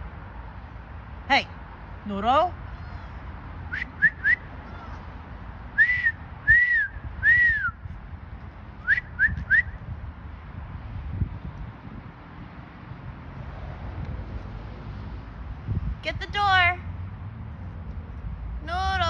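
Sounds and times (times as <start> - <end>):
person whistling for a dog: 3.7 - 4.4, 5.8 - 7.8, 8.8 - 9.8.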